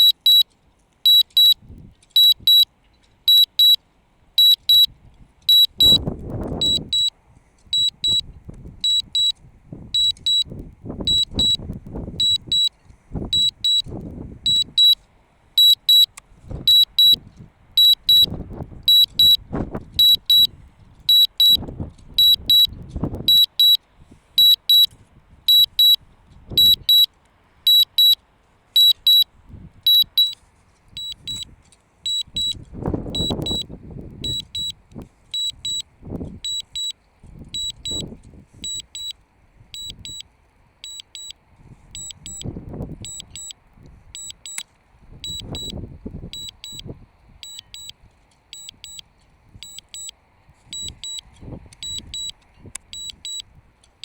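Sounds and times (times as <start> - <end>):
high double warning beeps: 0.0 - 0.5, 1.1 - 1.6, 2.2 - 2.7, 3.3 - 3.8, 4.4 - 7.1, 7.7 - 15.0, 15.6 - 17.2, 17.8 - 23.8, 24.4 - 27.1, 27.7 - 28.2, 28.8 - 31.5, 32.1 - 53.5
wind buffeting microphone: 4.9 - 7.0, 7.8 - 14.8, 16.4 - 23.3, 32.3 - 35.1.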